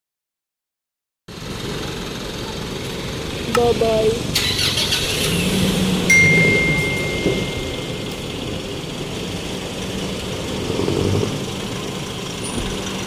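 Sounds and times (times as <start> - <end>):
car engine pulling away: 1.3 - 13.0
traffic noise: 1.3 - 13.0
thin high tone: 6.1 - 8.4.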